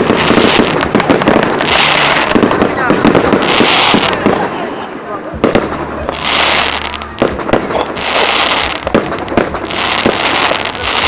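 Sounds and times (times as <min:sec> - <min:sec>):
firework shells bursting: 0:00.0 - 0:04.5
crackling hiss: 0:00.0 - 0:04.6, 0:05.4 - 0:11.0.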